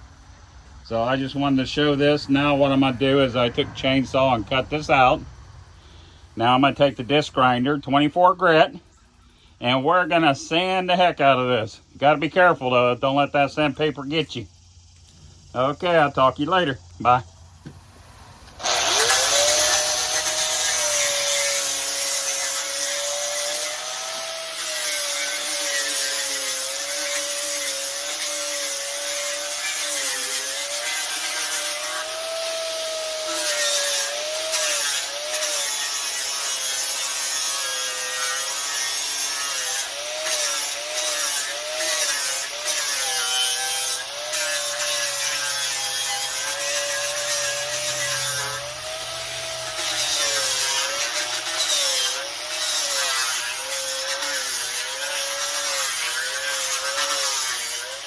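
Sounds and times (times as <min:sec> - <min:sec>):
disc grinder whining: 0:17.6 - 0:57.6.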